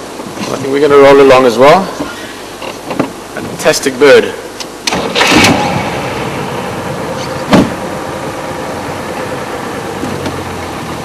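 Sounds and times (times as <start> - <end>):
vehicle engine running: 5.0 - 11.0
sharp knock: 7.5 - 7.8.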